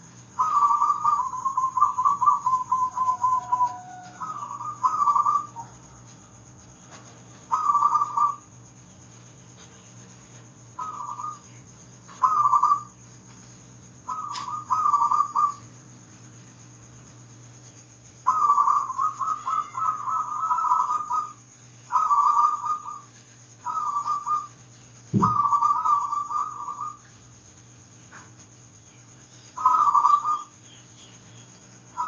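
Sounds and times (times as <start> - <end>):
dove cooing in trilled phrases: 0.0 - 5.9, 7.0 - 8.6, 10.7 - 13.0, 14.0 - 15.7, 18.2 - 27.3, 29.5 - 30.9
faint steady hum: 0.0 - 32.0.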